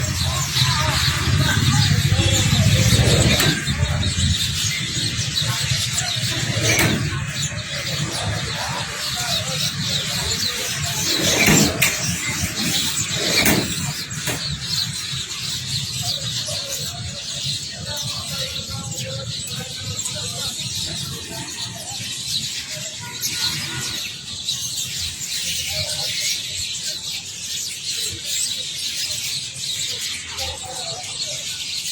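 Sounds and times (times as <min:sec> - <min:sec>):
low rumble of traffic: 0:00.0 - 0:25.4
birds chirping and chattering: 0:00.0 - 0:31.9.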